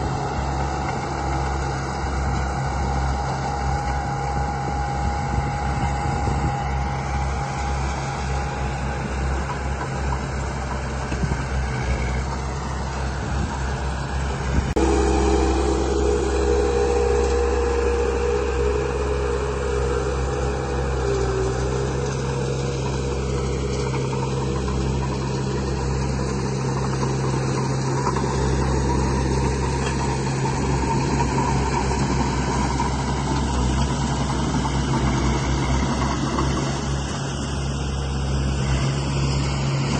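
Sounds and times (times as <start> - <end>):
higher motor whine: 0.0 - 39.9
electric motors humming: 14.8 - 35.7.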